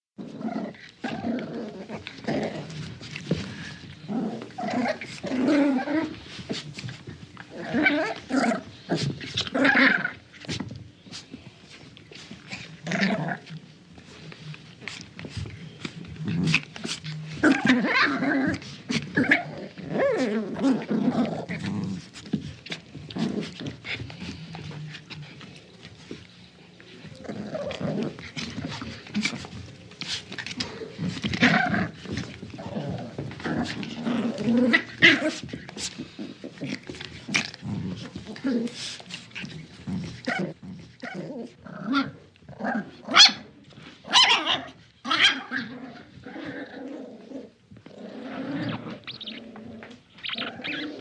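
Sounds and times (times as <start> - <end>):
small dog growling: 0.2 - 6.9, 7.5 - 10.2, 12.5 - 13.6, 15.8 - 25.6, 27.1 - 43.1, 44.4 - 51.0
scuffles and clicks: 20.8 - 41.0
dog whining: 48.3 - 51.0.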